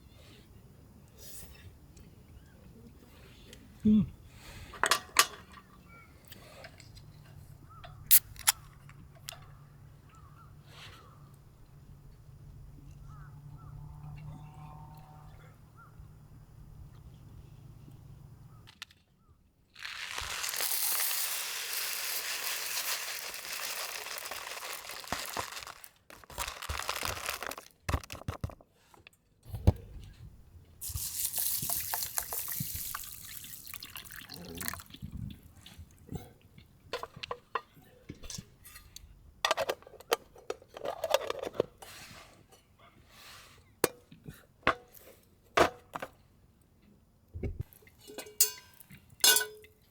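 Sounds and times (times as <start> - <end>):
water pouring: 19.8 - 27.6, 30.8 - 35.1.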